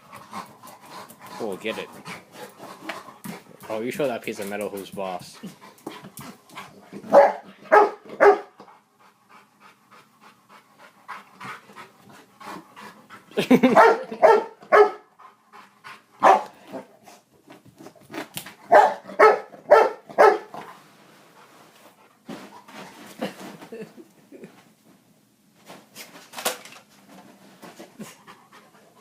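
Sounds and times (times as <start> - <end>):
dog panting: 0.0 - 7.7, 8.6 - 13.8, 15.1 - 16.4, 28.0 - 29.0
dog barking: 7.1 - 8.5, 13.7 - 15.1, 16.2 - 16.5, 18.7 - 20.5.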